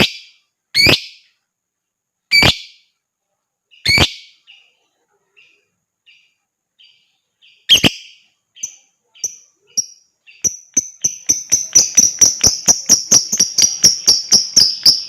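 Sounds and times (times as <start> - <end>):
lovebird harsh calls: 0.0 - 1.3, 2.3 - 2.9, 3.7 - 4.5, 6.8 - 15.0
soft short bird chirps: 0.0 - 1.4, 3.7 - 15.0.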